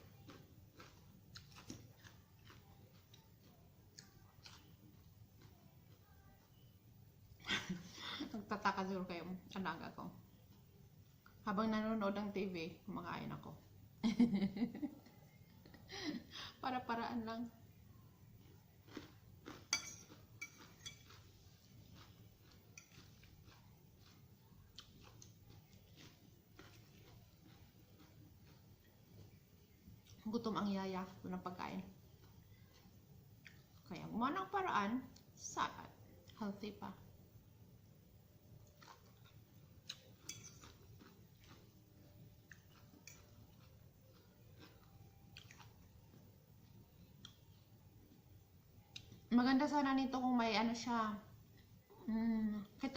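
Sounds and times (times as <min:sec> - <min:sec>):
soft chewing: 0:00.0 - 0:11.6, 0:17.5 - 0:49.9, 0:51.2 - 0:52.9
cutlery clinking on a dish: 0:19.7 - 0:21.2, 0:40.2 - 0:40.8.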